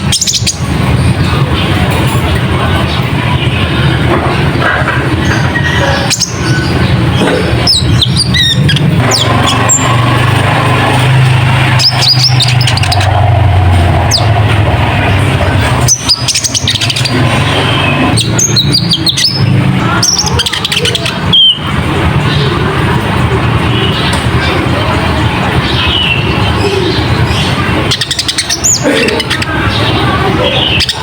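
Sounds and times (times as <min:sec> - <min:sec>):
bird chirping: 0:00.0 - 0:31.0
loud low engine-like hum: 0:00.0 - 0:31.0.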